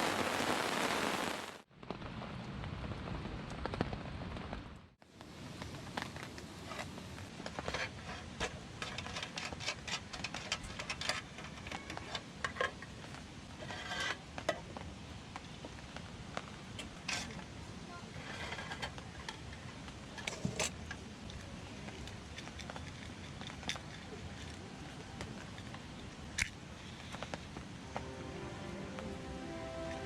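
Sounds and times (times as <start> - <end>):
rain falling: 0.0 - 30.0
sharp ticks of raindrops: 14.3 - 17.7.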